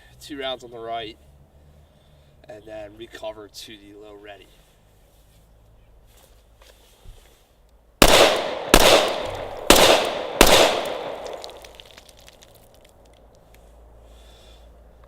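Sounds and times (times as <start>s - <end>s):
pistol shots echoing: 8.0s - 11.9s.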